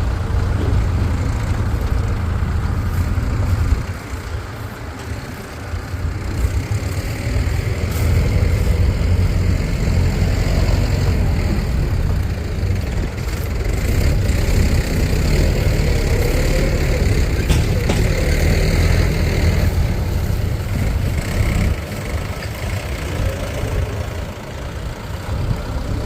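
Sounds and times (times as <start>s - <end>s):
diesel engine rumbling: 0.0s - 26.0s.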